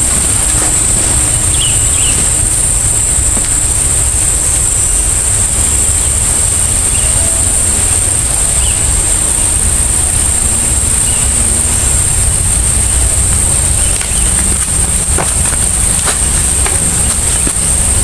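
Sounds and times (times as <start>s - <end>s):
constant high hiss: 0.0s - 18.0s.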